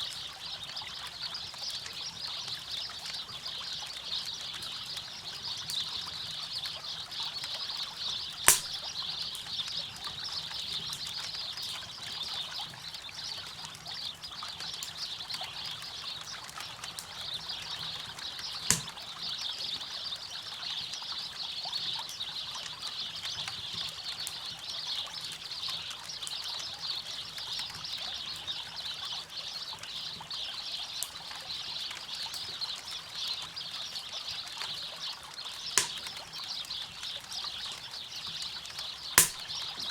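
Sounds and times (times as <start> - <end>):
sharp fire pops: 8.5 - 8.9, 18.7 - 19.0, 35.8 - 36.1, 39.2 - 39.6
campfire crackling: 8.5 - 9.7, 18.2 - 19.0, 35.8 - 36.4, 39.2 - 39.7.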